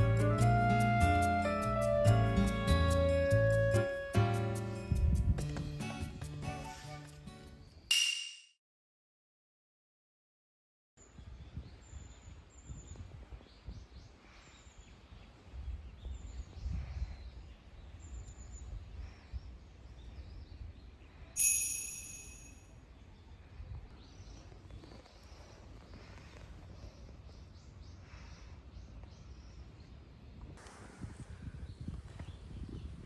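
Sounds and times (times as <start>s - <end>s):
bright ringing clink: 21.4s - 22.8s.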